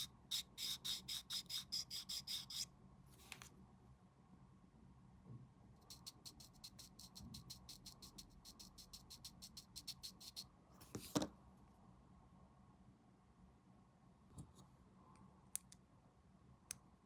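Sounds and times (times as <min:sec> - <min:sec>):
sanding plastic part: 0:00.0 - 0:02.7, 0:05.8 - 0:10.4.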